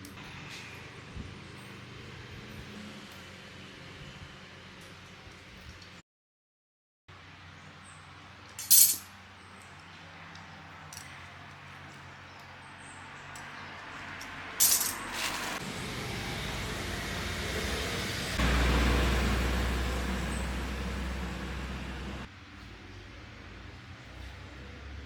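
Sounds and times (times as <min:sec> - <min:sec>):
low hum: 0:15.6 - 0:22.3.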